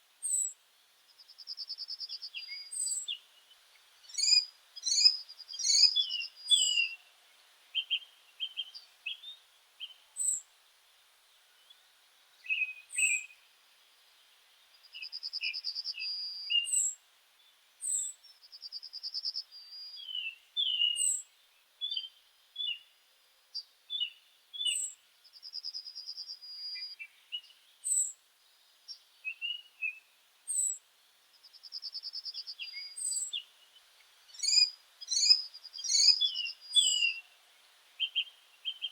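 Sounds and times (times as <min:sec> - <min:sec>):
short bird chirps: 0:31.5 - 0:33.5, 0:34.3 - 0:37.2
dry bird trill: 0:34.4 - 0:37.2.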